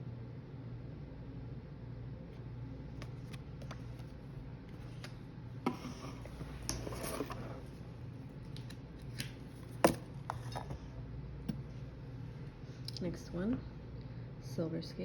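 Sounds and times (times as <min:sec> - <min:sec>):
steady low hum: 0:00.0 - 0:15.0
cardboard rustling: 0:02.9 - 0:05.2.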